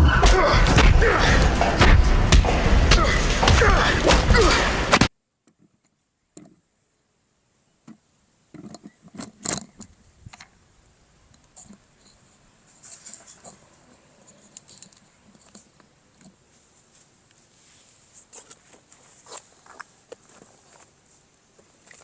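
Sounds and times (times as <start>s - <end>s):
film soundtrack audio: 0.0s - 5.1s.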